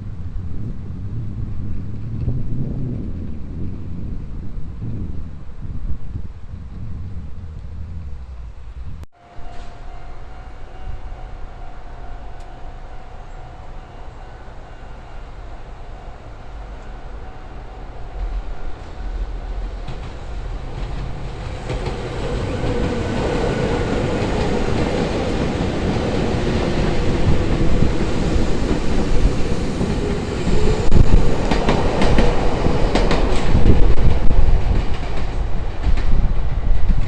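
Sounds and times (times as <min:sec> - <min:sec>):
electric train humming: 0:08.3 - 0:37.0
wheels clacking over rail joints: 0:16.8 - 0:37.0.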